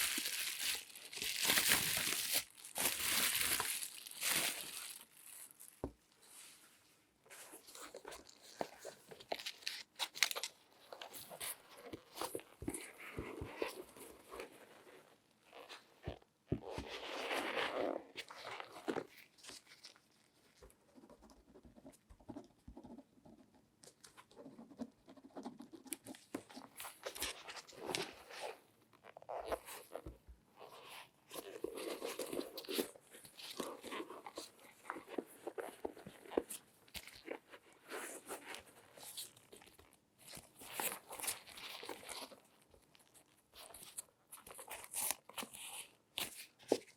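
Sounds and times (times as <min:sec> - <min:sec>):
gloved hands rustling and crinkling: 0:00.0 - 0:06.8, 0:30.7 - 0:46.9.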